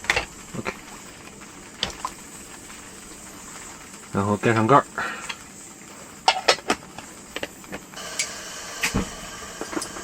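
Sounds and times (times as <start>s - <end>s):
camping stove burner hissing: 0.0s - 10.0s.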